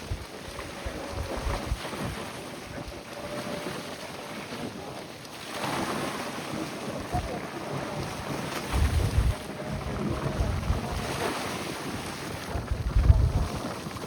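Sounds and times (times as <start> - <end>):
choppy water wash: 0.0 - 14.0
wind buffeting microphone: 0.0 - 14.0.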